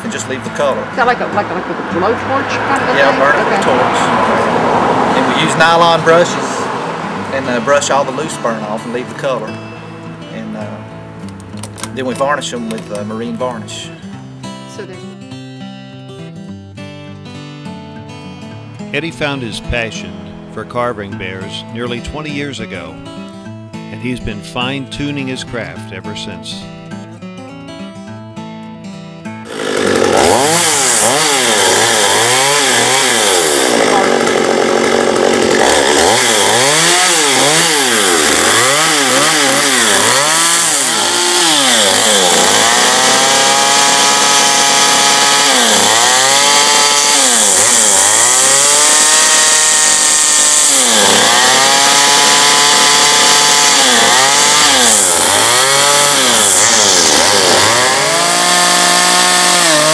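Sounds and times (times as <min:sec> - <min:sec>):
chainsaw revving cutting wood: 0:00.0 - 0:09.6, 0:29.4 - 0:59.9.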